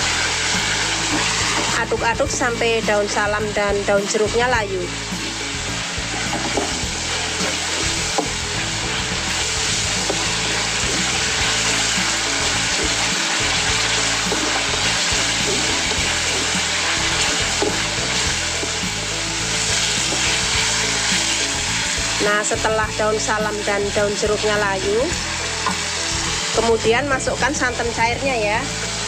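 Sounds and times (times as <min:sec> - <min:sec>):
paste sizzling in hot oil: 0:00.0 - 0:29.0
spatula scraping and tapping wok: 0:06.0 - 0:22.0.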